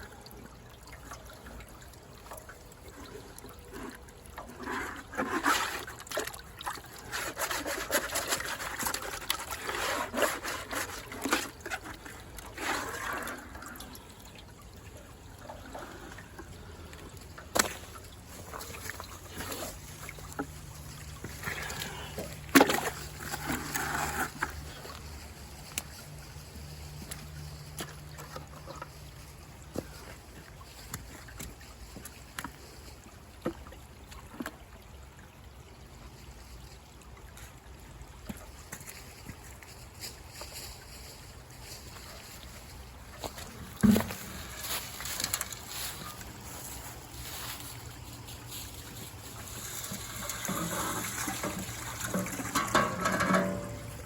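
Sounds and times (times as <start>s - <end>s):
faint trickling water: 0.0s - 54.0s.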